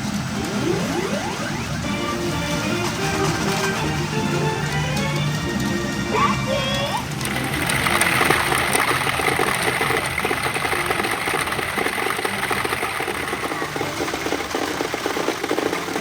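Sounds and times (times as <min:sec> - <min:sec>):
electronic machine music: 0:00.0 - 0:16.0
steel balls clattering: 0:07.0 - 0:16.0.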